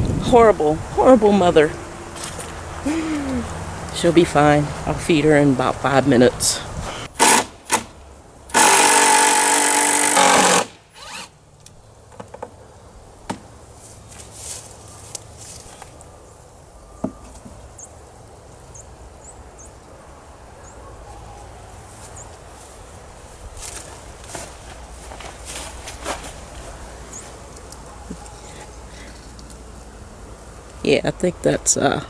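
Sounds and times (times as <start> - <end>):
power drill running: 7.2 - 7.9, 8.5 - 11.3.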